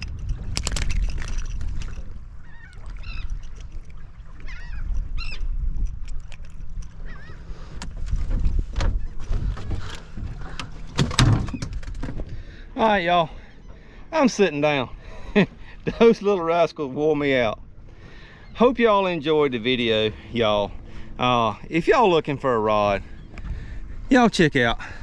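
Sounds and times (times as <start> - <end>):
wind and water rumble: 0.0 - 25.0
seabirds squawking: 2.3 - 5.6, 7.0 - 7.8, 12.4 - 16.7, 17.3 - 25.0.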